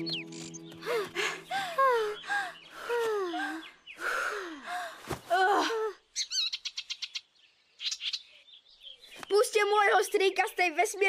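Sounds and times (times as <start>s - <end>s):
fast high bird trill: 0.0s - 0.9s
cartoon birdsong: 0.0s - 4.3s, 6.2s - 8.6s.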